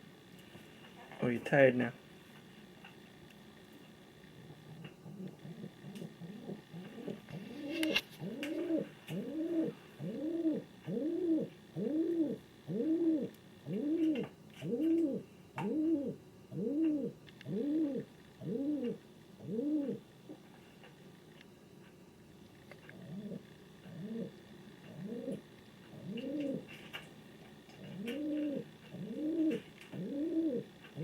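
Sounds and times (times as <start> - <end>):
pigeon cooing: 4.6 - 20.0, 22.9 - 27.0, 27.7 - 31.0.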